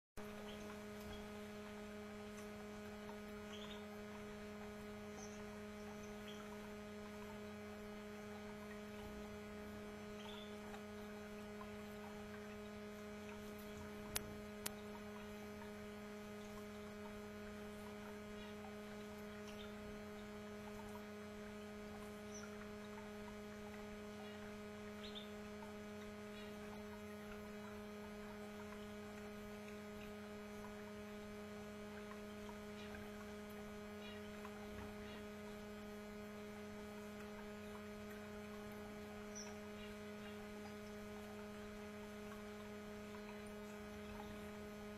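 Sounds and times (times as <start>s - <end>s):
electrical hum: 0.2s - 44.9s
canaries chirping: 3.4s - 7.7s, 9.9s - 12.8s, 38.8s - 40.8s
sharp clicks: 13.2s - 15.0s.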